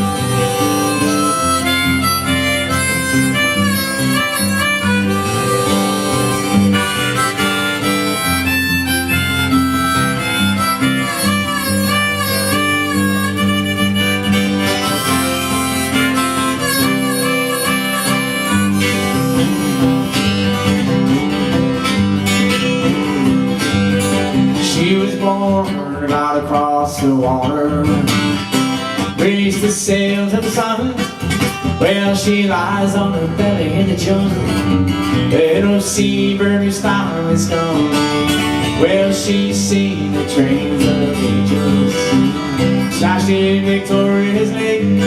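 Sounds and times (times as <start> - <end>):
harmonica solo: 0.0 - 24.5
acoustic guitar: 0.0 - 45.0.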